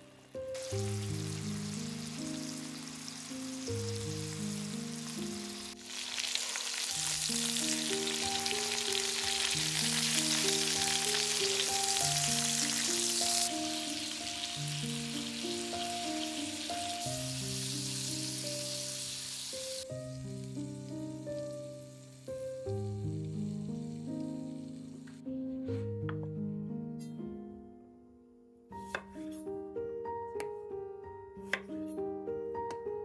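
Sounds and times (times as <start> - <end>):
chicken sizzling in a pan: 0.0 - 25.2
soft background music: 0.0 - 33.0.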